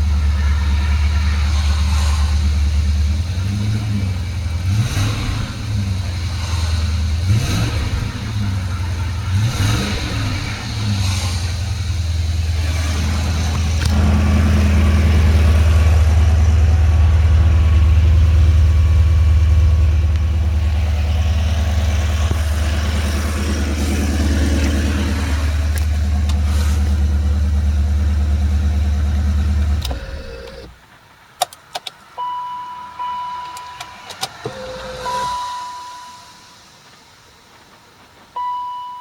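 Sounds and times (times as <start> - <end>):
car engine idling: 0.0 - 39.0
sharp clicks: 31.4 - 32.1
short electronic beeps: 32.2 - 36.5, 38.4 - 39.0.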